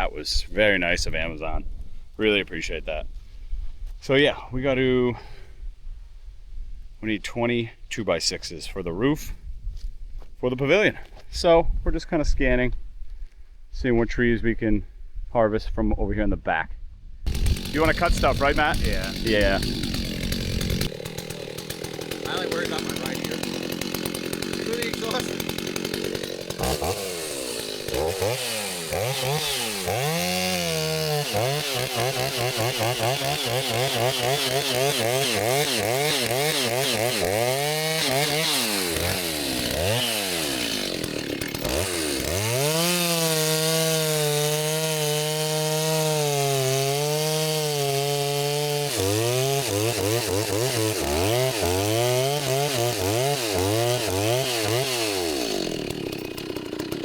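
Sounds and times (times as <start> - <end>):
chainsaw engine revving: 17.3 - 57.0.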